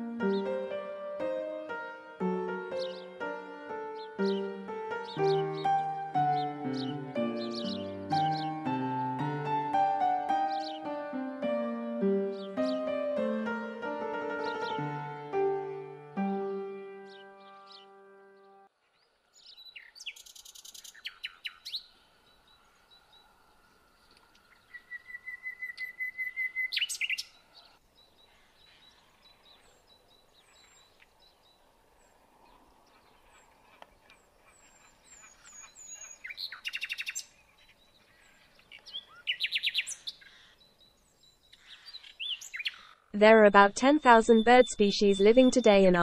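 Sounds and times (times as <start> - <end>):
birds calling rapid high notes: 0.0 - 18.7, 41.5 - 46.0
faint high bird chirps: 3.9 - 8.7, 17.0 - 31.6, 34.7 - 46.0.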